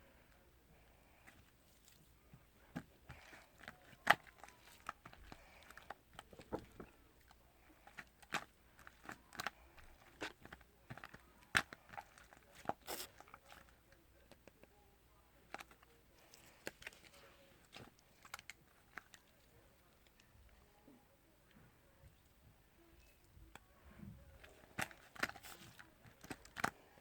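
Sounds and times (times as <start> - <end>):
soft clicks and crackles: 15.4 - 22.4.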